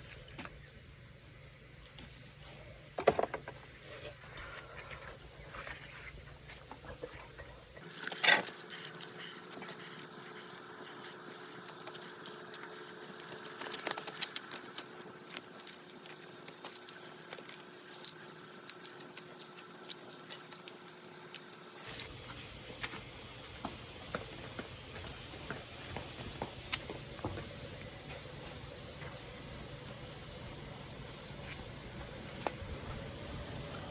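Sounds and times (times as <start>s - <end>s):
wood fire crackling: 7.8s - 33.9s.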